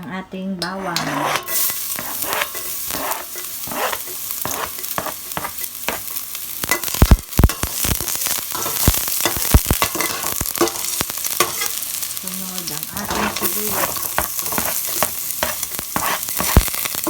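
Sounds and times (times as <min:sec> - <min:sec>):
garlic sizzling in hot oil: 0:00.9 - 0:17.0.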